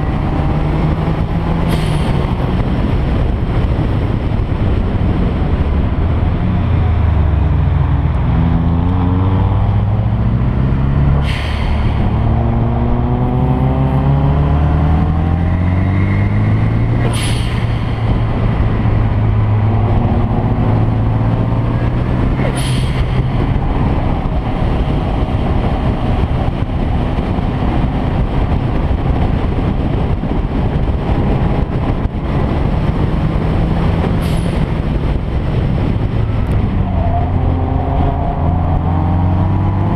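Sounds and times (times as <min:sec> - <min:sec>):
car engine accelerating: 0:00.0 - 0:39.9
short sharp hisses: 0:11.2 - 0:12.0, 0:17.0 - 0:18.0, 0:22.5 - 0:23.2.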